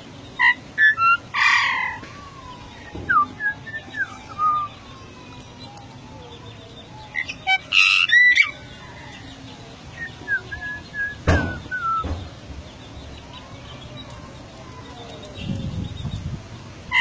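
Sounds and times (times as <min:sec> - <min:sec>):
myna calling with whistles: 0:00.4 - 0:09.3, 0:09.9 - 0:12.2.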